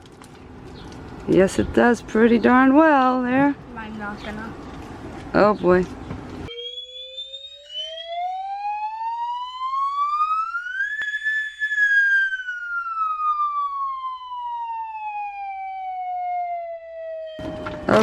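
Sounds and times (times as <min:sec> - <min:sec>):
siren-like wail sliding in pitch: 0:06.5 - 0:18.0.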